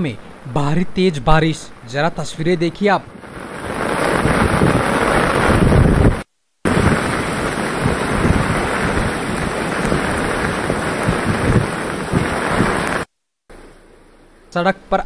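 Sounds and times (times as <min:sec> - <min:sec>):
heavy rain pouring: 0:00.0 - 0:14.5
wind buffeting microphone: 0:02.6 - 0:13.1.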